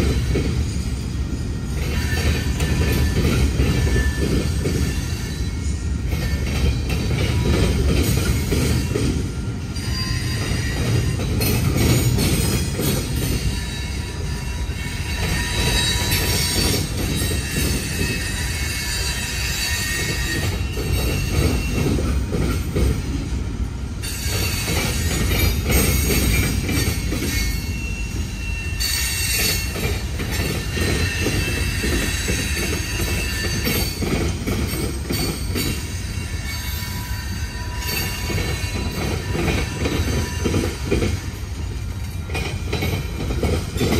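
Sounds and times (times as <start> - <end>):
freight train wheels rumbling: 0.0 - 43.9
high-pitched wheel squeal: 13.4 - 22.0, 25.8 - 29.8, 30.6 - 34.0.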